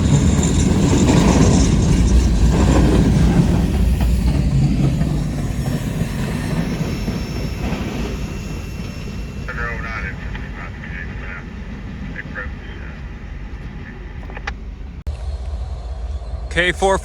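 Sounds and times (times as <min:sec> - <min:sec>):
wheel squeal: 0:00.0 - 0:09.8
train wheels clicking: 0:00.0 - 0:15.7
train rumbling on track: 0:00.0 - 0:17.0.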